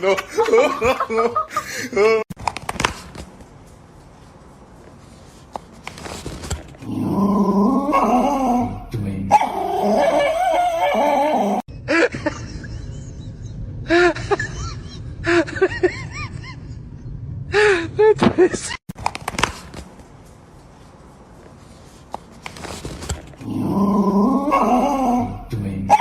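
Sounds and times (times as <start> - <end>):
dog whining: 9.3 - 11.6.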